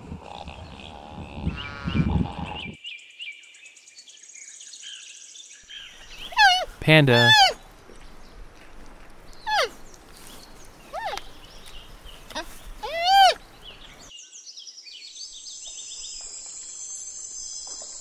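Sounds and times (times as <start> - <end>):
panda bleating calls: 6.3 - 7.6, 9.5 - 9.7, 12.3 - 13.4.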